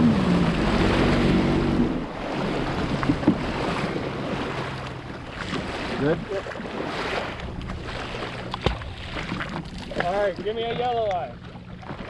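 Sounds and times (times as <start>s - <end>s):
jet ski engine running: 0.0s - 12.0s
water noise: 0.0s - 12.0s.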